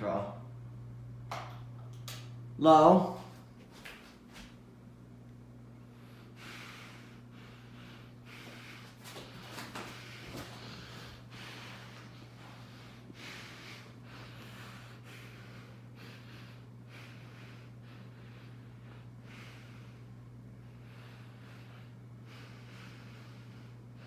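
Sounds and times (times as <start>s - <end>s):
ceiling fan humming: 0.0s - 24.0s
person breathing: 5.8s - 9.0s, 9.9s - 24.0s.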